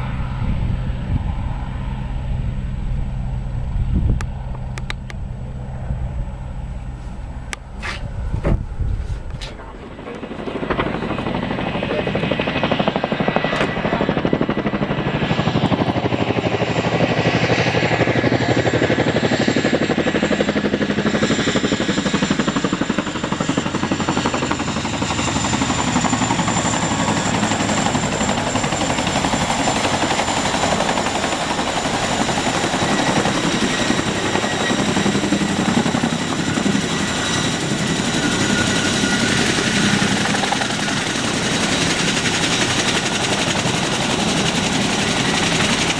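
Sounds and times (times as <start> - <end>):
high engine whine: 0.0 - 16.5
helicopter rotor chop: 0.0 - 45.9.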